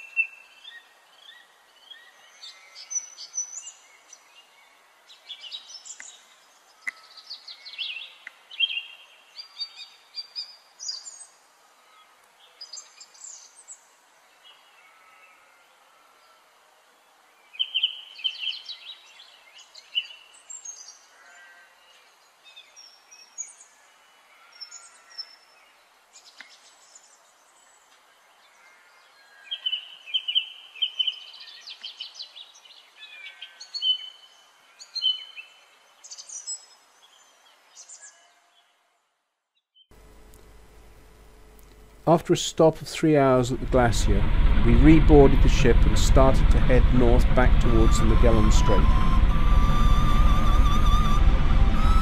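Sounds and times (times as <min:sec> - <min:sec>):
birds chattering trills and chirps: 0:00.0 - 0:15.5, 0:17.4 - 0:38.7
faint steady hiss: 0:00.0 - 0:39.3, 0:39.9 - 0:52.0.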